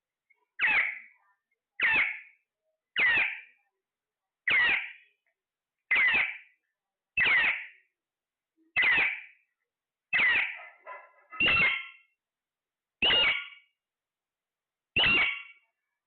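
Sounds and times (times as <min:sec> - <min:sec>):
parrot loud calls: 0:00.6 - 0:01.0, 0:03.0 - 0:03.4, 0:04.5 - 0:05.0, 0:05.9 - 0:06.4, 0:07.2 - 0:07.7, 0:08.8 - 0:09.3, 0:10.1 - 0:12.0, 0:13.0 - 0:13.6, 0:15.0 - 0:15.6.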